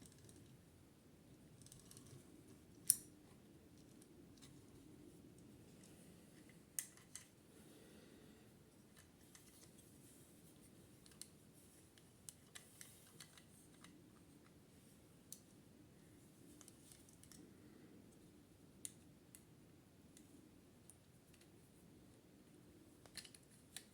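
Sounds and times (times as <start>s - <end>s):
faint small clicks: 16.6s - 17.4s.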